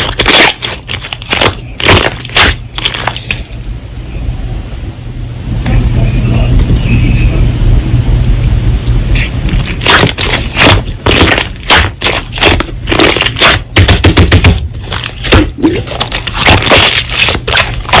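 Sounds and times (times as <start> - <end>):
slime squeezed crackling and popping: 0.0 - 3.6, 9.1 - 14.1, 14.8 - 18.0.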